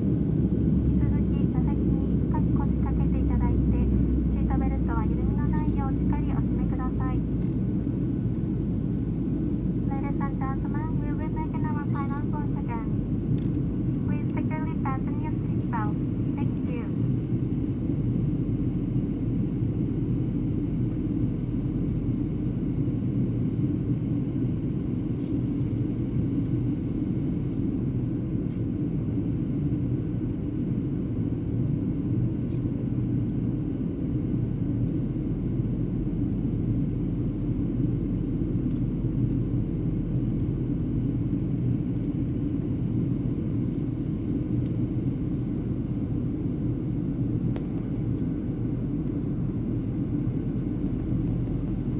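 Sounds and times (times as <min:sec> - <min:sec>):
airliner cabin engine drone: 0:00.0 - 0:51.9.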